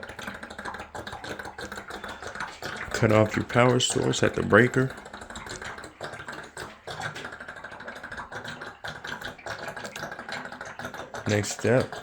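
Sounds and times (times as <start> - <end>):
water trickling and spattering: 0.0 - 12.0.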